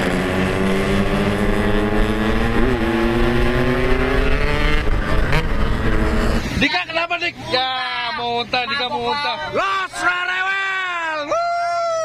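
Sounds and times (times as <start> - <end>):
motorcycle engine accelerating: 0.0 - 6.6.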